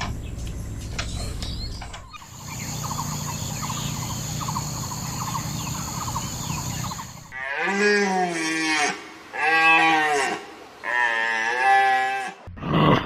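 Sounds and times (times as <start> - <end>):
birds chirping and calling: 0.0 - 7.4
low hum: 0.0 - 7.4
quick rattling calls: 0.0 - 7.4
high insect-like drone: 2.2 - 7.4.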